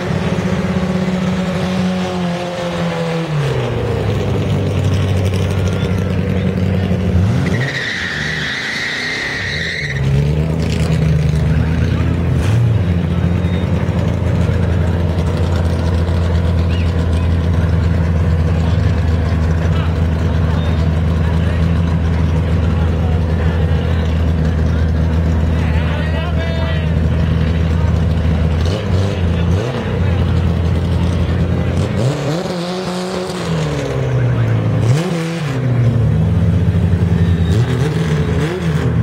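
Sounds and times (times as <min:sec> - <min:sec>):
engine idling loudly: 0:03.7 - 0:07.2, 0:10.4 - 0:32.1
tyre squeal: 0:07.4 - 0:10.2, 0:37.1 - 0:38.5.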